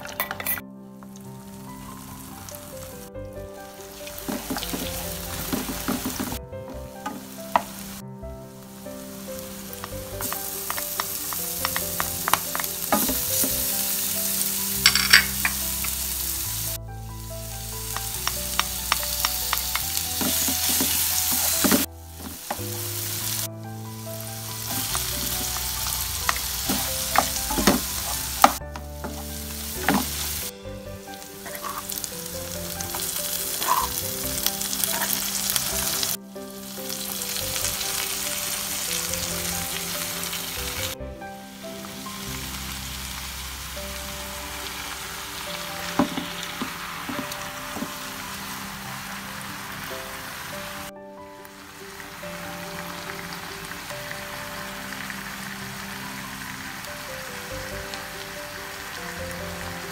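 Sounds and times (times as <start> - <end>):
food sizzling in hot oil: 3.7 - 6.4, 7.0 - 8.0, 8.7 - 50.9, 51.5 - 59.9
spatula stirring and scraping: 31.4 - 32.0, 32.9 - 34.0.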